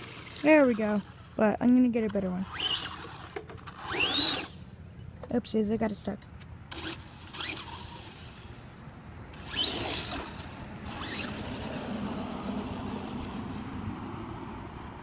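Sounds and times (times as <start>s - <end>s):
electric motor whining: 2.4s - 4.6s, 6.7s - 8.4s, 9.4s - 13.4s.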